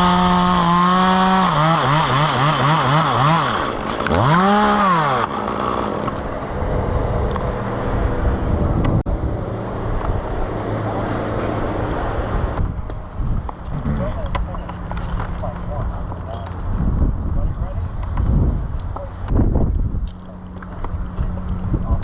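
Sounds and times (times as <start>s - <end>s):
chainsaw idling: 0.0s - 6.2s
chainsaw engine revving: 0.0s - 6.4s.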